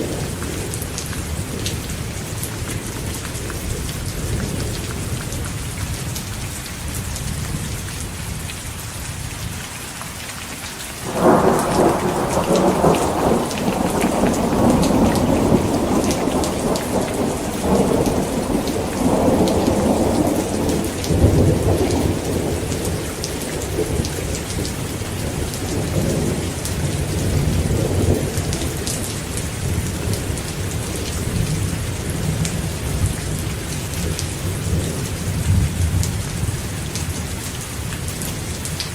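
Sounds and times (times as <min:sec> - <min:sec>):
heavy rain: 0:00.0 - 0:38.9
rolling thunder: 0:11.0 - 0:36.7.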